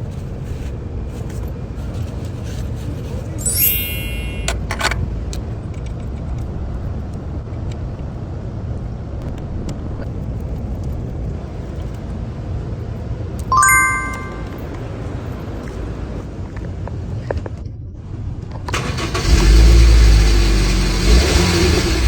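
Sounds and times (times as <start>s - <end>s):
chime-like ringing: 3.4s - 4.5s, 13.5s - 14.6s.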